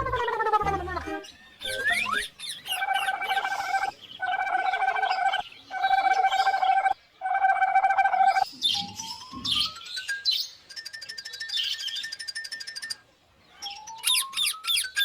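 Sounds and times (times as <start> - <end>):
bird calls: 0.0 - 15.0.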